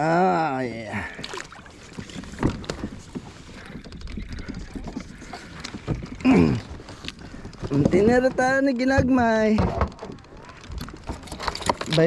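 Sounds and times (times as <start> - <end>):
knocks and clicks on a kayak: 1.2 - 12.0.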